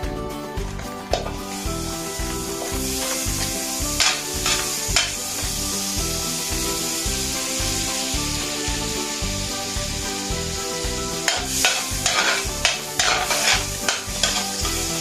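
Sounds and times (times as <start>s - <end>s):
background music with a beat: 0.0s - 15.0s
food sizzling in butter: 1.1s - 15.0s
utensil scraping a pan: 2.5s - 5.5s, 11.2s - 15.0s.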